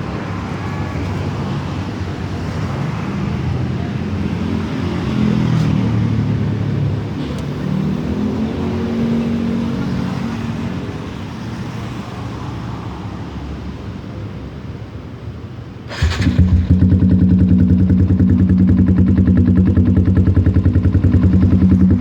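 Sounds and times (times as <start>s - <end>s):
motorcycle engine running: 15.9s - 22.0s.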